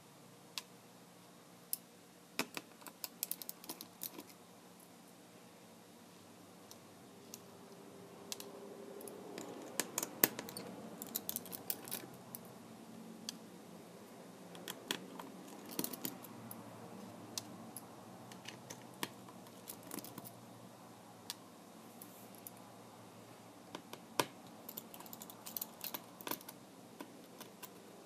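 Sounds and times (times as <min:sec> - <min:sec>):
hand tools clicking and tapping: 0:08.3 - 0:12.4, 0:14.5 - 0:16.6, 0:18.3 - 0:20.3, 0:23.7 - 0:27.8
plastic parts being handled: 0:14.6 - 0:16.3.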